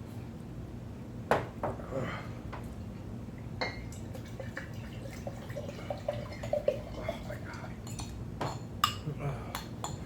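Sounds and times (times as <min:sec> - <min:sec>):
utensils clinking against a bowl: 0:03.6 - 0:10.0.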